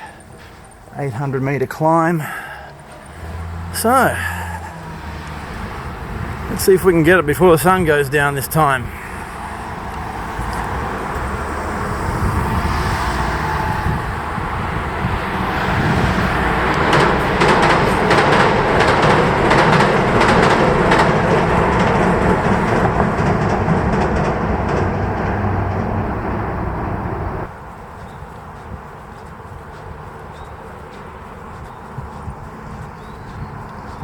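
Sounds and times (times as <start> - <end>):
train wheels clattering over rails: 2.2 - 27.6.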